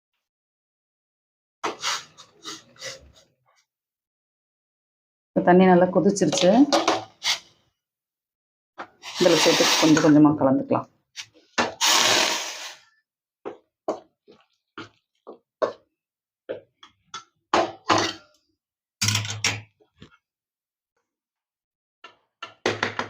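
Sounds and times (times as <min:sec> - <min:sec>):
spoon scraping and knocking bowl: 0:17.6 - 0:18.3.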